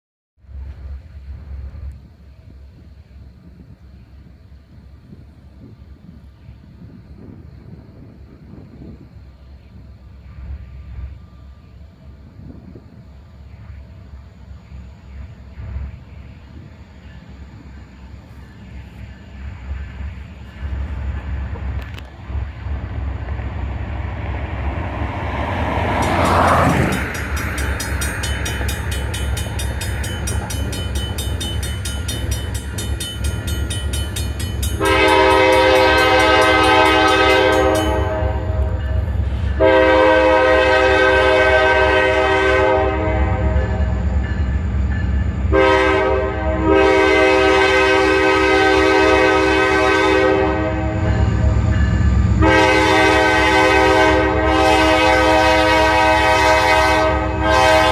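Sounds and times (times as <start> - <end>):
diesel locomotive rumbling: 0.4 - 57.9
locomotive air horn blasts: 34.8 - 43.9, 45.5 - 51.4, 52.4 - 57.9.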